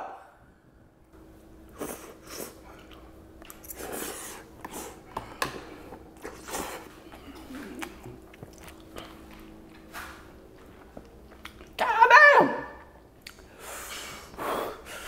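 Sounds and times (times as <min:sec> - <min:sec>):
person chewing noodles: 0:01.7 - 0:11.8.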